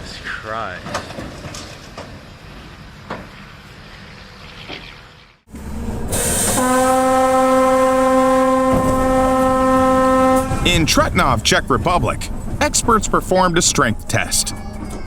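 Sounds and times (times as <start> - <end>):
train horn blast: 5.6 - 11.4.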